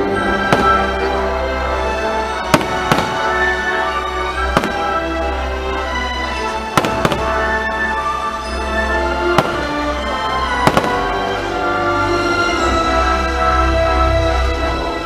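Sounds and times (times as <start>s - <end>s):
loud music: 0.0s - 15.0s
fireworks bursting: 0.2s - 11.6s.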